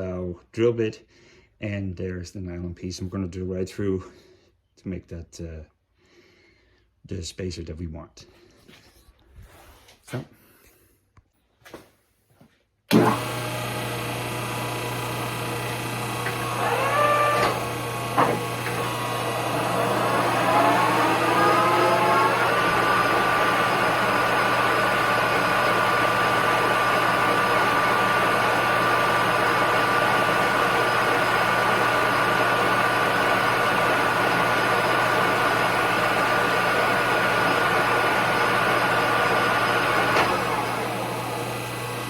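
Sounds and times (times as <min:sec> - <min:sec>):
lathe whining: 0:12.9 - 0:42.0.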